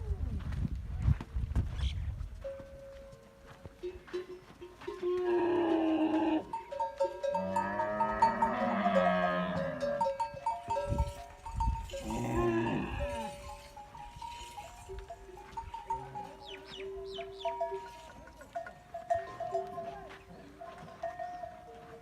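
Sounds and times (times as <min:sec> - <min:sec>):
camels calling: 0:04.8 - 0:22.0.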